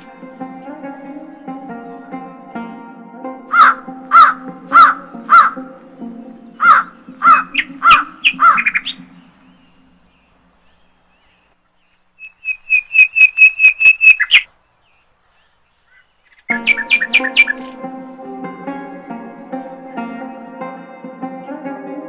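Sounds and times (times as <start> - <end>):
bird gurgling calls: 3.5 - 5.6, 6.6 - 17.8
bird sharp clicking notes: 6.6 - 10.8, 12.2 - 14.8, 15.9 - 17.8.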